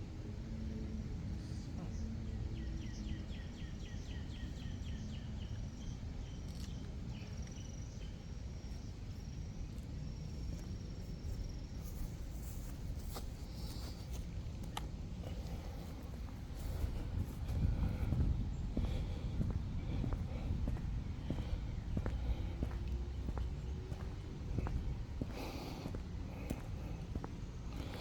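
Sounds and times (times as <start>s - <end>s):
low rumble: 14.9s - 28.0s.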